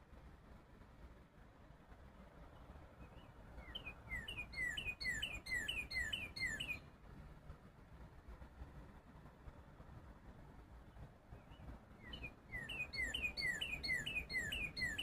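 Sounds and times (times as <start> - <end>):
songbird whistling song: 3.0 - 6.9, 11.4 - 15.0.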